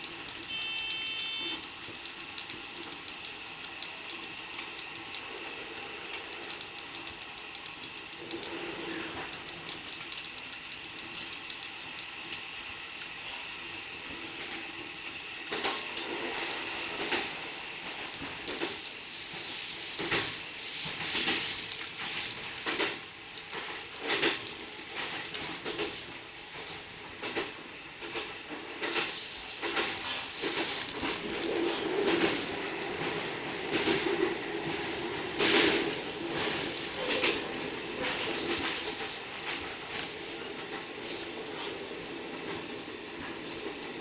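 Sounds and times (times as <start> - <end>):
train rushing hiss: 13.1 - 44.0.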